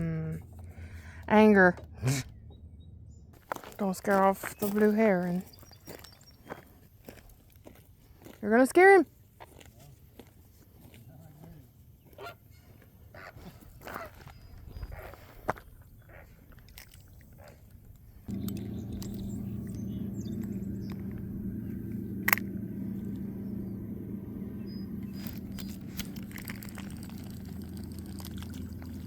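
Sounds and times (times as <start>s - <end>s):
low engine hum: 0.0s - 6.4s, 18.2s - 29.0s.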